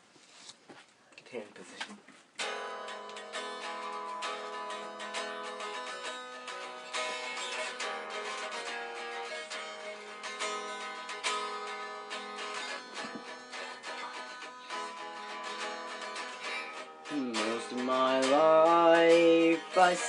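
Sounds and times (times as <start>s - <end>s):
plucked and strummed guitar: 2.4s - 20.0s
person singing: 16.4s - 20.0s.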